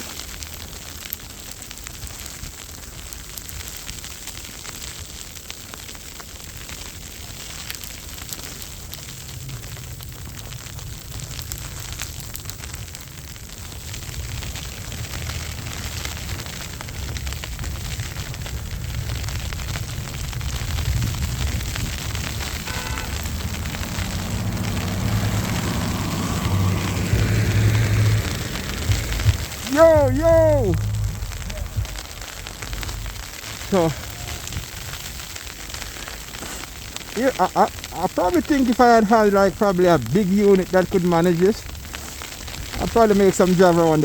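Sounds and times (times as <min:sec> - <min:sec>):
wind buffeting microphone: 0:14.0 - 0:35.8.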